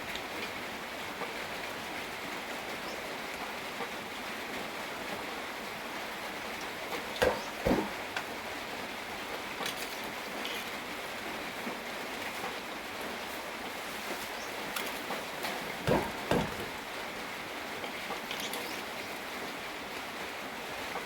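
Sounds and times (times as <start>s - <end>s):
steady rain falling: 0.0s - 21.0s
thumps: 7.2s - 8.3s, 15.5s - 16.8s.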